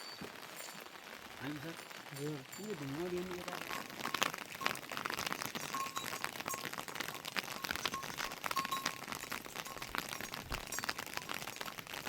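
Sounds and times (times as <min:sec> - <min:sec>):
rain falling: 0:00.0 - 0:12.0
drips tapping on hard surface: 0:02.5 - 0:11.8.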